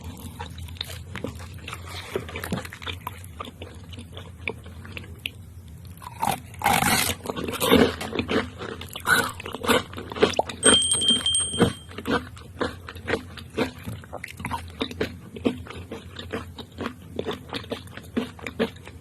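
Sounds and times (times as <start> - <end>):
crunchy chewing of fried food: 0.0 - 10.6, 11.8 - 19.0
high-pitched tone: 10.6 - 11.9.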